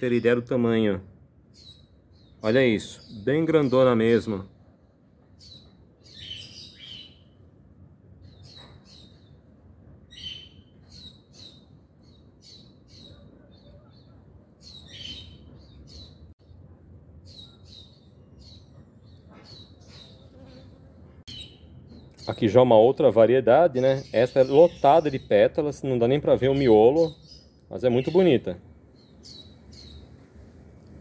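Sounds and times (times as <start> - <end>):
small birds chirping: 0.0 - 7.5, 8.2 - 16.6, 17.2 - 30.5.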